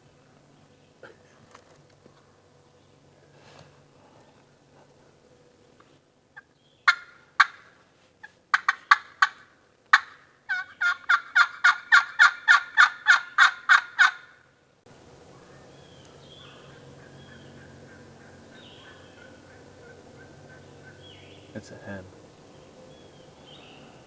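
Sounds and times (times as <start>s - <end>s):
wild turkey hen yelping: 6.4s - 14.4s, 15.3s - 21.5s.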